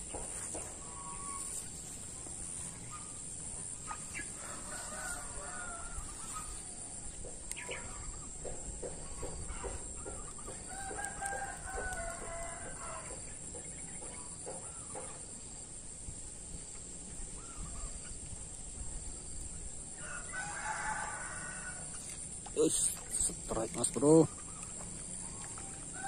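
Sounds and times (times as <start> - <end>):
rooster crowing: 4.4 - 6.5, 10.6 - 13.2, 20.0 - 21.9.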